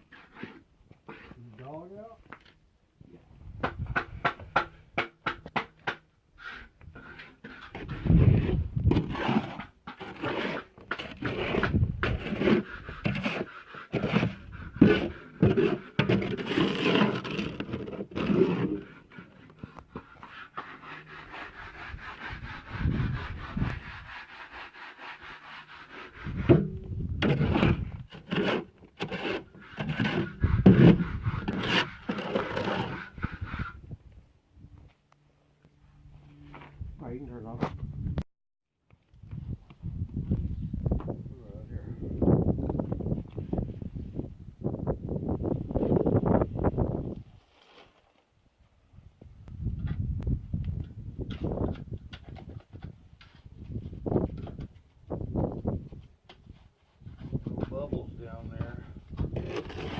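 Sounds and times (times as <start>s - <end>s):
hand tool scraping concrete: 0.0s - 1.8s, 5.5s - 33.8s, 57.0s - 59.9s.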